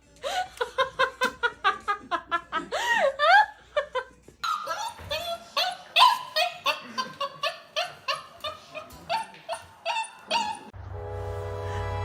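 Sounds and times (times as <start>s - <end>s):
dog yipping: 4.4s - 10.7s.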